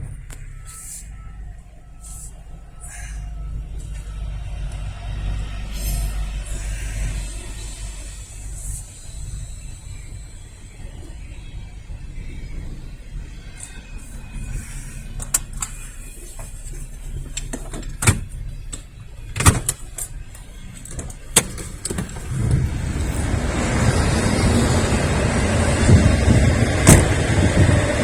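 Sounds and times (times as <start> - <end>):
low train rumble: 0.0 - 28.0
freight train passing on rails: 22.0 - 28.0.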